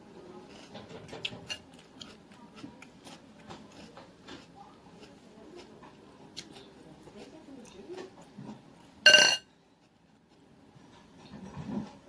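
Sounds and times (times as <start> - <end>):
person chewing: 0.4 - 9.0.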